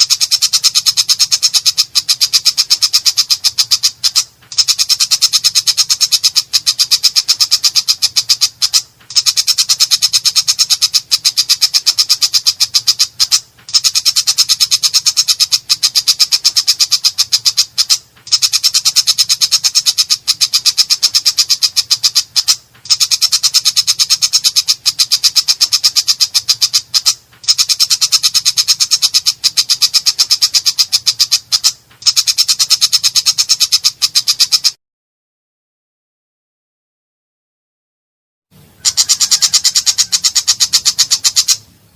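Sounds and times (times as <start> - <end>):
shrike harsh chattering song: 0.0 - 34.8, 38.7 - 41.8.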